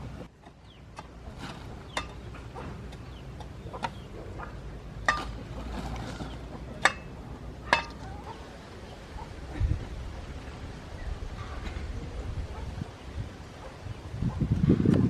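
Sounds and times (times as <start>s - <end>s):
chickens clucking: 0.0s - 10.6s.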